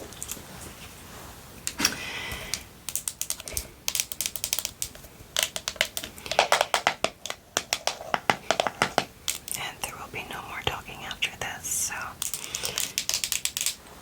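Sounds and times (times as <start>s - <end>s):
fingernails tapping on hard object: 2.9s - 9.5s.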